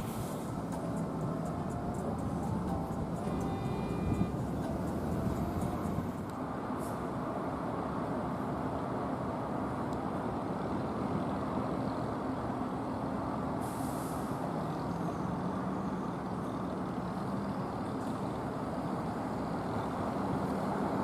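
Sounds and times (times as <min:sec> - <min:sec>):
air brakes hissing: 0:00.0 - 0:01.0, 0:13.6 - 0:14.5
heavy truck engine running: 0:00.0 - 0:07.7.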